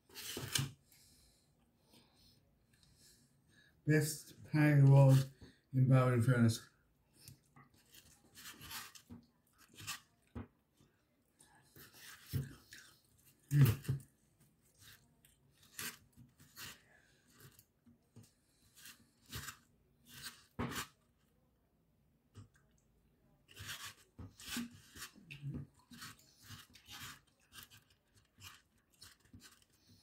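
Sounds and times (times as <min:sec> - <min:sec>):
person chewing food: 0:10.9 - 0:20.6.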